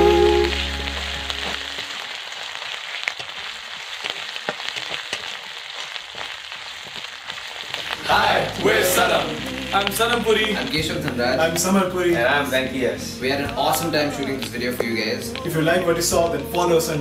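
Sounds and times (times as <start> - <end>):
background music: 0.0 - 2.0, 8.0 - 17.0
prawns sizzling in oil: 0.0 - 17.0.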